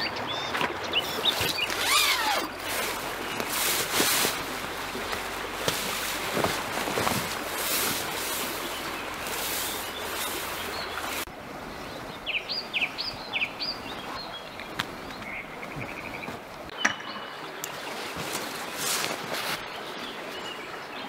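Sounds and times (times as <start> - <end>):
wild birds calling: 0.0 - 18.2
broad rustling hiss: 1.1 - 11.3.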